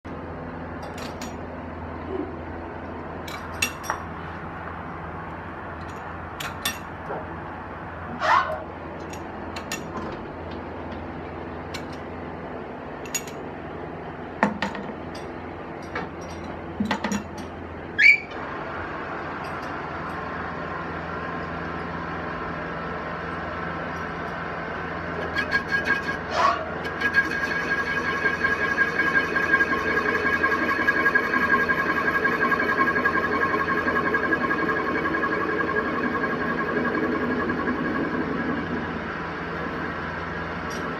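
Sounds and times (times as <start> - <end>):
lathe humming: 25.2 - 40.9.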